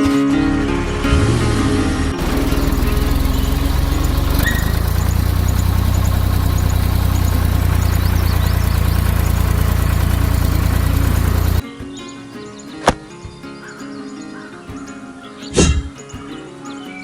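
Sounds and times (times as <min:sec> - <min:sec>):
tractor engine idling: 0:00.0 - 0:11.6.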